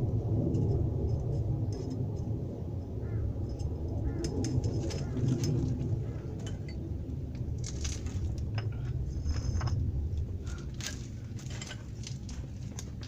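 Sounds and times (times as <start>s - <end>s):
steady low rumble: 0.0s - 13.0s
metal tools clinking: 3.5s - 6.8s, 7.6s - 13.0s.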